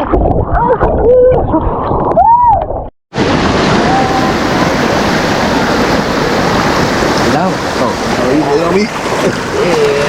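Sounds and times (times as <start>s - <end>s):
person whooping: 2.2s - 2.7s
river water rushing: 3.2s - 10.0s.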